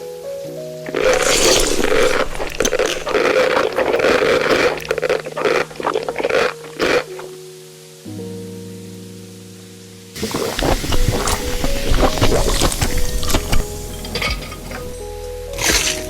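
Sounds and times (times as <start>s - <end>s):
soft background music: 0.0s - 16.0s
scraping and rustling: 0.9s - 7.2s, 10.2s - 15.0s, 15.6s - 16.0s.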